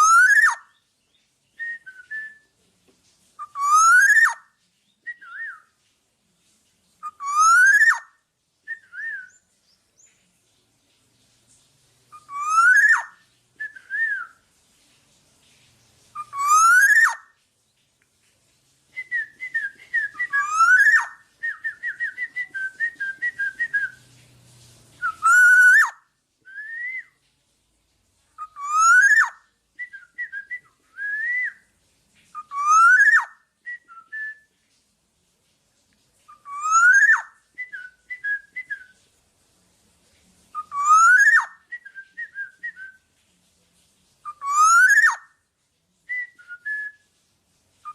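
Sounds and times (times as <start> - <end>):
bird singing fluty whistles: 0.0 - 0.8, 1.5 - 2.5, 3.4 - 5.8, 7.0 - 10.1, 12.1 - 14.4, 16.2 - 17.3, 18.9 - 24.1, 25.0 - 27.2, 28.4 - 31.6, 32.3 - 34.5, 36.3 - 39.0, 40.5 - 43.1, 44.2 - 45.3, 46.1 - 47.1.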